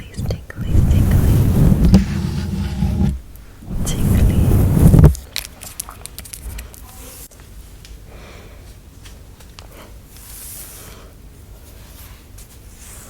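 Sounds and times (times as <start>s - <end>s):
light taps and brushing: 0.2s - 5.2s.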